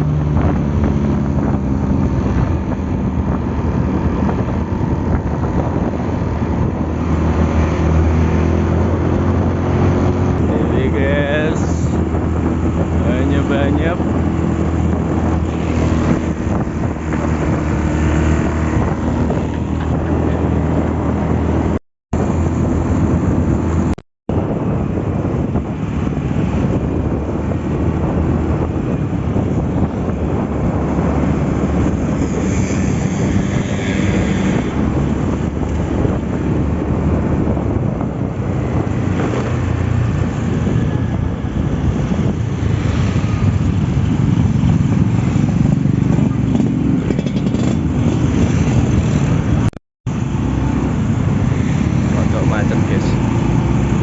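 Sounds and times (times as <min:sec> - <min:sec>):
wind noise on microphone: 0:00.0 - 0:54.0
motorcycle engine running: 0:41.2 - 0:54.0.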